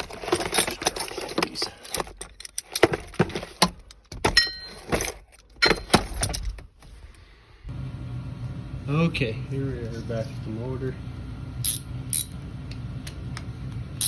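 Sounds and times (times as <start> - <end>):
metal tools clinking: 0.0 - 6.6, 11.6 - 12.4.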